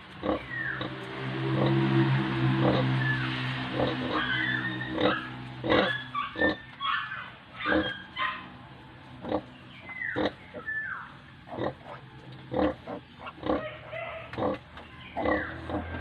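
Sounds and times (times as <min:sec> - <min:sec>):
piglets squealing: 0:00.2 - 0:01.7, 0:02.6 - 0:08.5, 0:09.2 - 0:16.0
sow grunting: 0:01.6 - 0:06.7, 0:07.6 - 0:08.2, 0:11.5 - 0:16.0.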